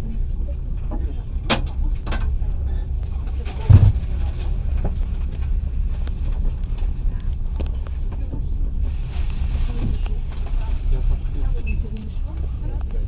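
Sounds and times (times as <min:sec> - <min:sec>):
train wheels rumbling on rails: 0:00.0 - 0:13.0
sharp clicks and knocks: 0:01.5 - 0:02.4, 0:03.6 - 0:04.2.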